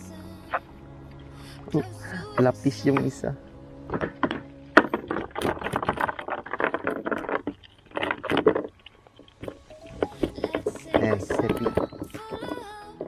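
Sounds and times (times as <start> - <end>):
fishing gear rattling: 3.9 - 12.7.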